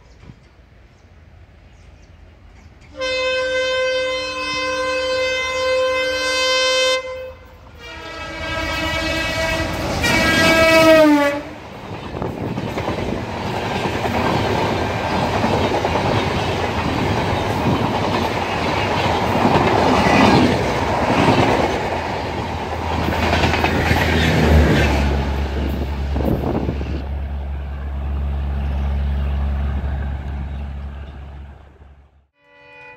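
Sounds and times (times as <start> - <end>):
locomotive horn: 2.9 - 11.6, 23.9 - 32.9
train wheels clattering over rail joints: 11.7 - 26.6.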